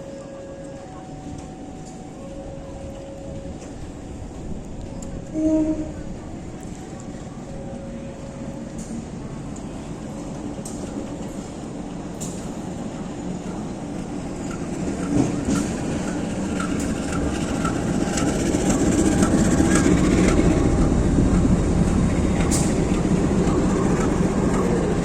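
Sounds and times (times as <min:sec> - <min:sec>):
train rumble: 0:00.0 - 0:25.0.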